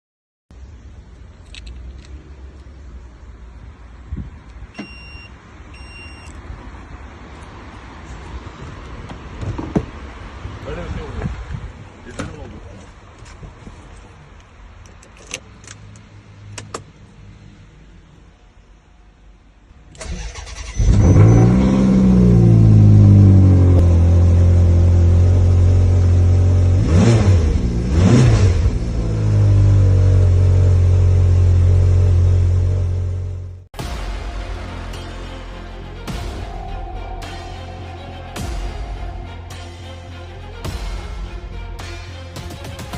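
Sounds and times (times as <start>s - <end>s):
short electronic beeps: 4.8s - 6.3s
car engine starting and idling: 19.7s - 42.9s
low steady rumble: 34.4s - 42.2s.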